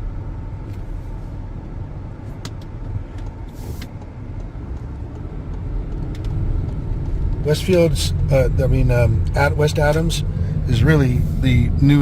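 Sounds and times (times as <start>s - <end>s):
car engine and road rumble: 0.0s - 12.0s
short hiss: 3.5s - 4.0s.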